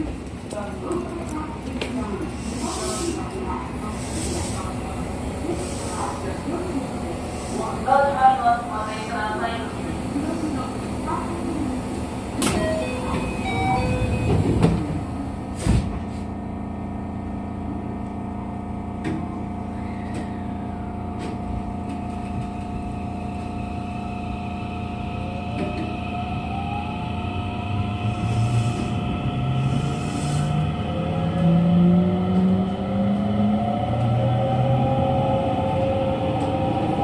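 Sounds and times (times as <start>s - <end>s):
train door chime: 12.4s - 14.8s
train motor whine: 22.4s - 31.6s.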